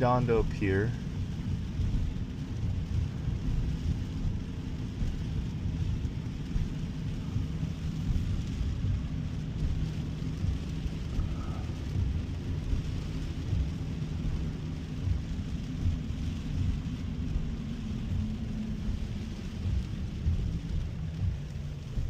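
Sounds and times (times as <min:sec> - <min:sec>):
hiss of rain and spray: 0:00.0 - 0:22.0
road and tyre noise: 0:00.0 - 0:22.0.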